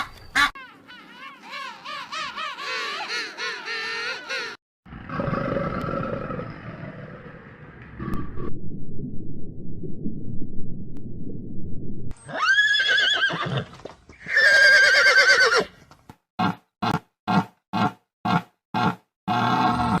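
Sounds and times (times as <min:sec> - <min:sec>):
low rumble: 0:06.9 - 0:12.2
horse whinnying: 0:12.2 - 0:15.7.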